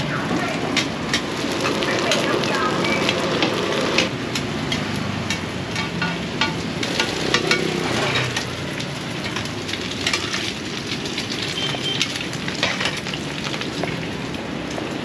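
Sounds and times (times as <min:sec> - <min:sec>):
hot oil sizzling in a wok: 0:00.7 - 0:15.0
metal spatulas scraping a wok: 0:04.7 - 0:08.6.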